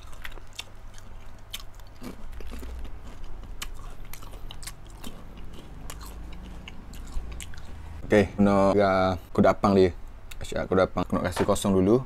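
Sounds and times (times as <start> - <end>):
popcorn crunching while chewed: 0.0 - 7.8.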